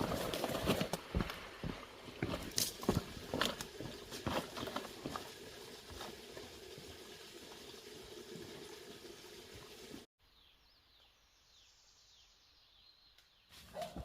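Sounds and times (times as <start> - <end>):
bird chirping: 10.2 - 14.0.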